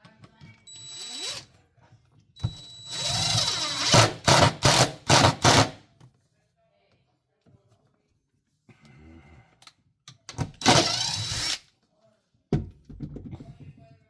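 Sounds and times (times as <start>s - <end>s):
power tool whining: 2.4s - 5.7s, 10.6s - 11.6s.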